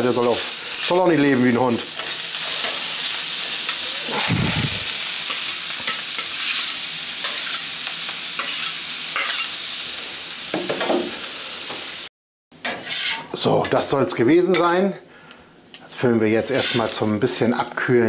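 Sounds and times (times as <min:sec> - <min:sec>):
food sizzling on a griddle: 0:00.0 - 0:12.1
spatula scraping: 0:12.6 - 0:13.4, 0:16.5 - 0:17.2.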